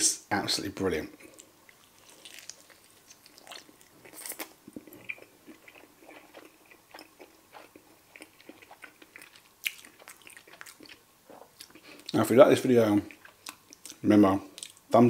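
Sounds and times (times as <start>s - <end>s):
crunchy chewing of chicken: 1.2s - 12.2s.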